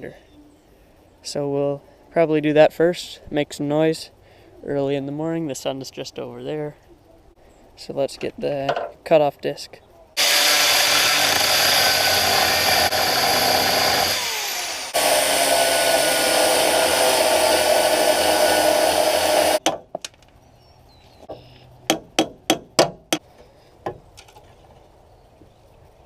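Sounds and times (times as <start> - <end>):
angle grinder cutting metal: 10.2 - 19.6
sharp knocks: 21.9 - 23.2.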